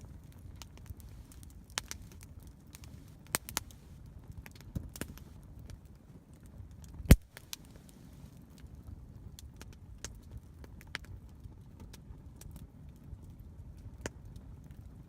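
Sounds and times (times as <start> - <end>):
campfire crackling: 0.0 - 15.0
loud crack: 7.1 - 7.5.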